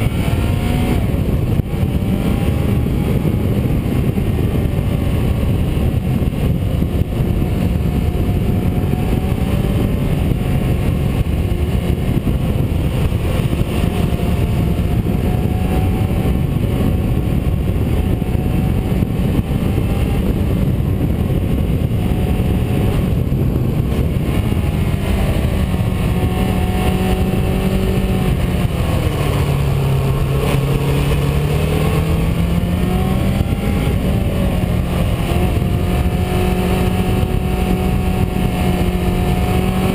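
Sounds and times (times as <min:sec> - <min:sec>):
car engine running: 0:00.0 - 0:39.9
tyre and wind noise: 0:00.0 - 0:39.9.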